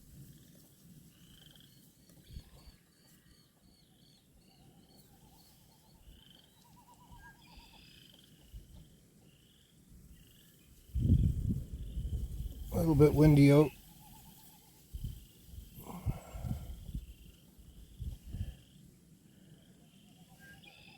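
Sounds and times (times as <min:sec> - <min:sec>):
bird calls: 0:00.3 - 0:20.9
wind rumble on microphone: 0:02.2 - 0:02.7, 0:10.8 - 0:14.2, 0:14.9 - 0:18.6.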